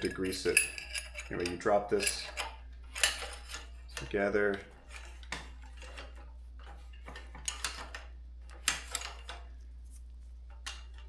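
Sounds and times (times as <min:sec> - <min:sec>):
metal clinks and scrapes: 0:00.0 - 0:08.0.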